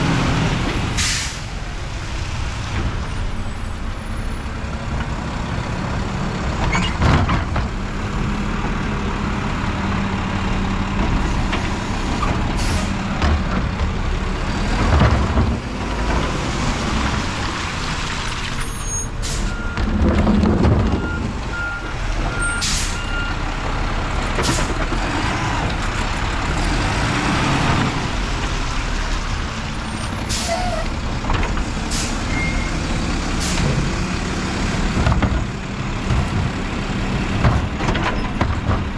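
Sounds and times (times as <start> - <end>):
air brake hisses: 1.0 - 1.5, 22.6 - 23.0, 30.3 - 30.8.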